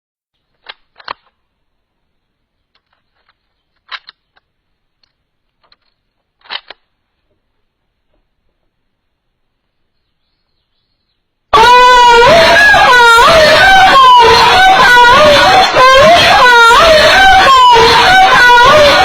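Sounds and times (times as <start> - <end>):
rifle action clicking: 3.8 - 6.9.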